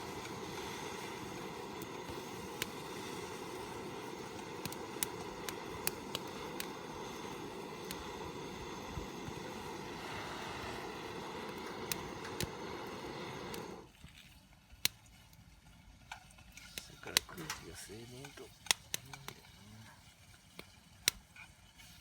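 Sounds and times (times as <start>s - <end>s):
rushing roar of forced air: 0.0s - 13.9s
burning wood crackling: 0.0s - 22.0s.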